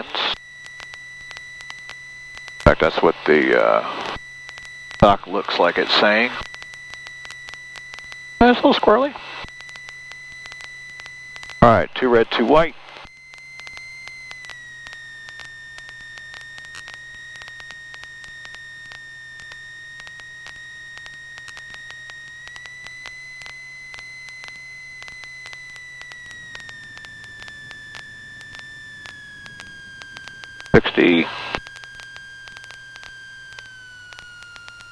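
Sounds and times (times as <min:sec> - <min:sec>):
high-pitched whine: 0:24.3 - 0:34.9.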